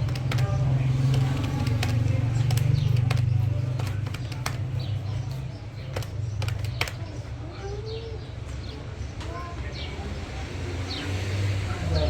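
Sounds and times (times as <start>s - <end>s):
sharp clicks: 0.0s - 7.2s
vehicle engine droning: 0.0s - 7.2s, 9.7s - 12.0s.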